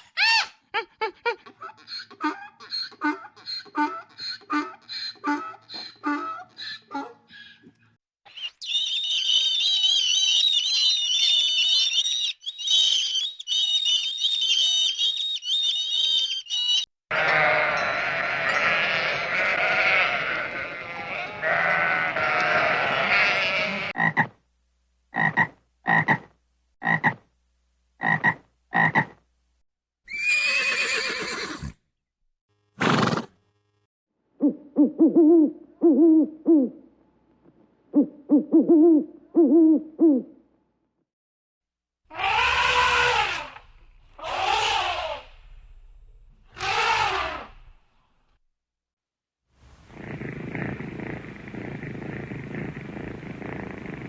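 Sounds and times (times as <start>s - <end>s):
short animal calls: 46.6s - 47.7s.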